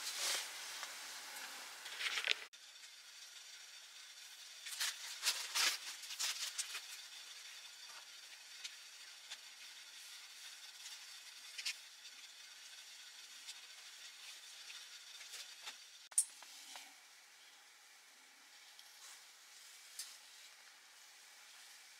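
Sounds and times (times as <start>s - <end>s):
steady hiss: 0.0s - 21.9s
paper packet crinkly rustling: 1.9s - 2.5s.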